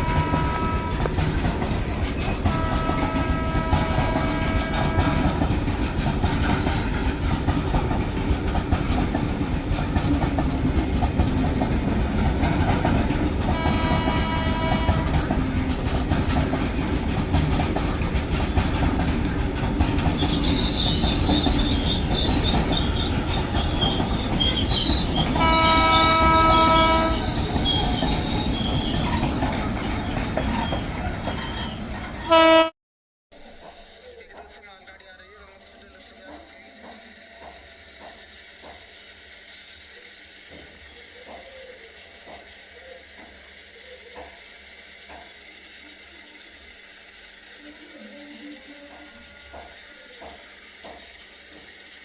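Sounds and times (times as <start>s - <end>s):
locomotive horn: 0.0s - 1.2s, 2.4s - 5.5s, 13.4s - 15.3s, 25.4s - 27.4s, 32.2s - 32.8s
wheel clatter over rail joints: 0.0s - 32.3s
train rumbling past: 0.0s - 32.7s, 33.4s - 52.0s
high wheel squeal: 19.9s - 32.3s.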